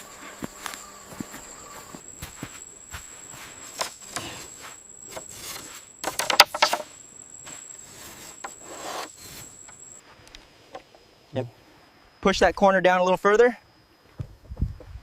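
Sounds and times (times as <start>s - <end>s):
high-pitched insect chirring: 0.0s - 10.1s
knocks and clattering: 6.0s - 6.9s.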